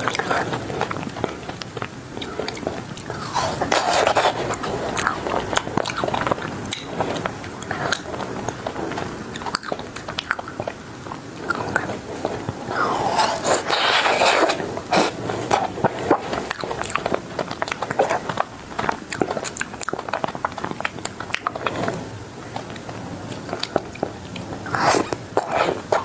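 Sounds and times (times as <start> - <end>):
wet mouth sounds: 0.0 - 21.9, 22.5 - 26.0
ice cream coating crackling: 0.0 - 26.0
hissing mouth sound: 3.0 - 5.2, 12.6 - 15.2, 24.6 - 26.0.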